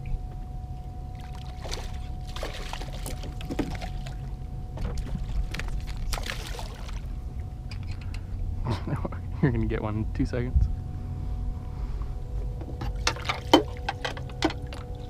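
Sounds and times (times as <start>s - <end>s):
faint steady tone: 0.0s - 15.0s
steady low rumble: 0.0s - 15.0s
water splashing around a boat: 1.1s - 7.5s, 12.9s - 15.0s.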